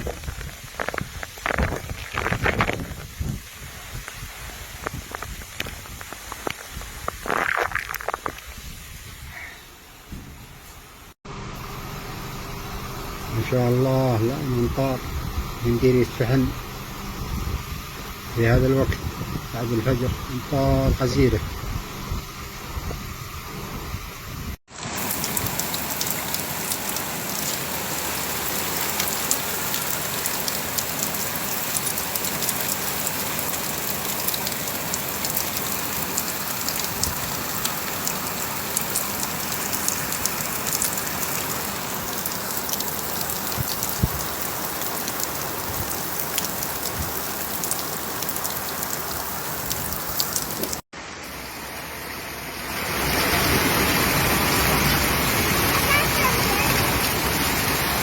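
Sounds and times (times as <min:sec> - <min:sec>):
heavy rain falling: 0:00.0 - 0:09.2, 0:24.7 - 0:58.0
rush of water: 0:00.0 - 0:11.0, 0:24.7 - 0:58.0.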